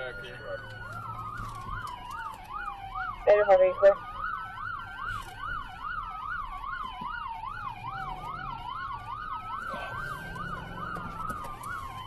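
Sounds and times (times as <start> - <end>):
police siren fast yelp: 0.0 - 12.0
police siren slow wail: 0.0 - 12.0
vehicle engine noise: 4.2 - 12.0.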